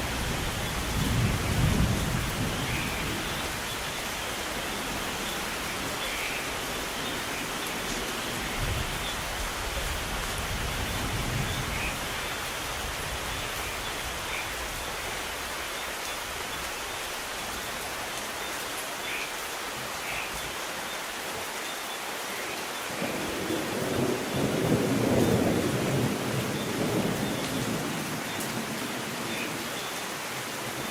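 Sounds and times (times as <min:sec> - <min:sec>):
distant thunder rumbling: 0:00.0 - 0:03.8, 0:23.0 - 0:29.3
steady rain hissing: 0:00.0 - 0:30.9.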